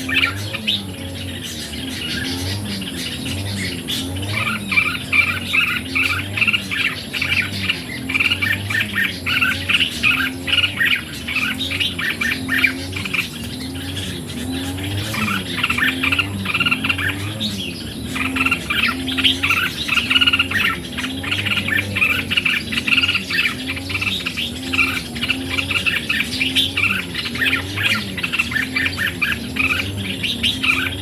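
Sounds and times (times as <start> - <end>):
bulbuls singing and chattering: 0.0 - 31.0.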